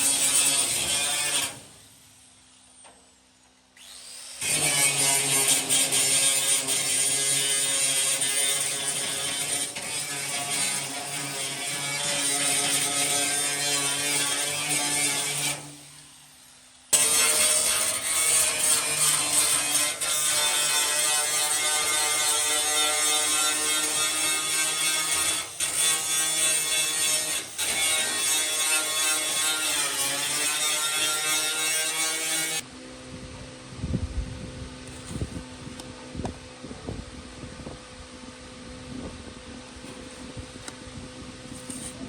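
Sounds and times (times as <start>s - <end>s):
power tool running on metal: 3.8s - 32.7s.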